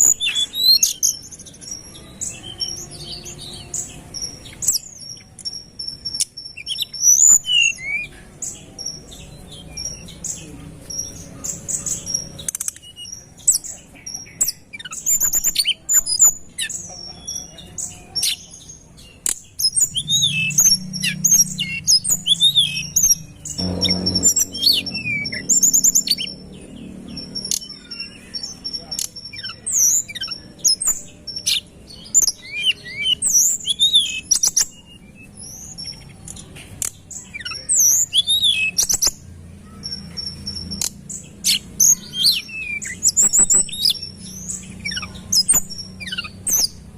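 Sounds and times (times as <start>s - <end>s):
bird singing whistles and trills: 0.0s - 36.4s, 37.1s - 46.8s.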